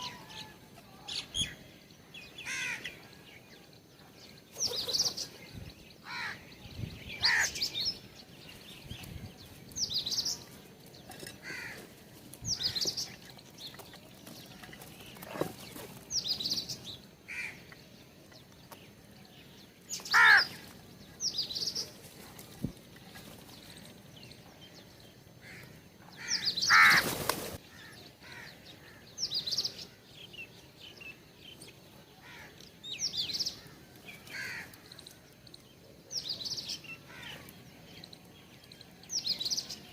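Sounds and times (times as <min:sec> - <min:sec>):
birds chirping: 0:00.0 - 0:39.9
harsh low bird calls: 0:04.6 - 0:08.1.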